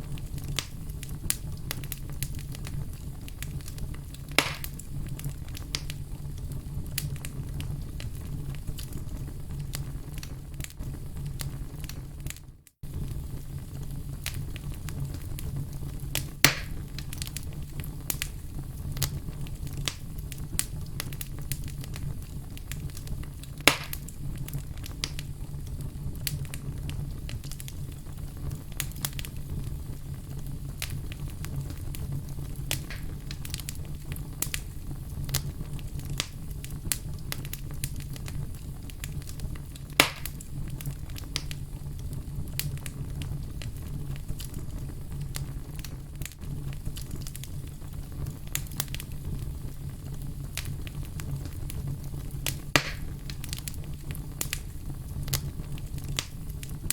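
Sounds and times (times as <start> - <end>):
wood fire crackling: 0.0 - 56.9
sharp pops of burning wood: 0.2 - 6.0, 14.1 - 15.5, 16.1 - 25.4, 30.7 - 56.9.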